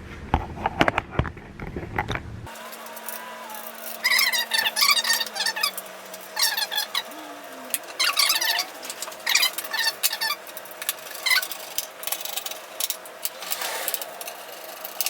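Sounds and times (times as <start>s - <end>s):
screwdriver clicking and scraping metal: 2.6s - 7.1s, 7.7s - 15.0s.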